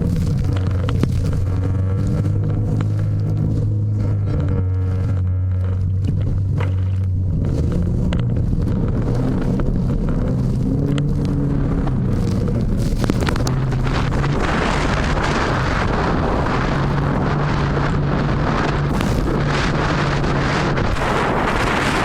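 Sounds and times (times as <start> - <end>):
boat engine humming: 0.0 - 22.0
wind buffeting microphone: 0.0 - 22.0.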